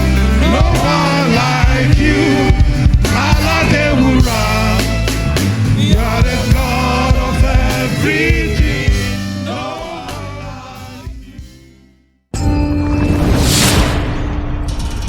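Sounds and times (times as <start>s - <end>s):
band with sustained bass: 0.0s - 11.8s
gospel singers: 0.0s - 11.9s.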